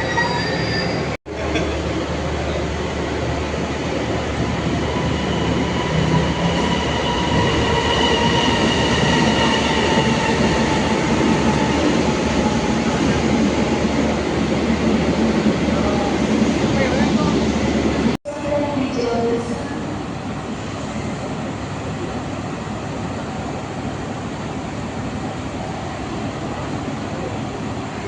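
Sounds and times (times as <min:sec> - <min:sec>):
steel wheels squealing: 0:00.0 - 0:01.2.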